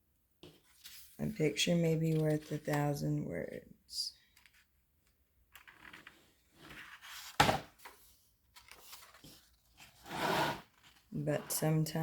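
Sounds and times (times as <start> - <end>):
paper rustling: 0.4 - 3.0, 5.6 - 10.0, 10.7 - 11.5.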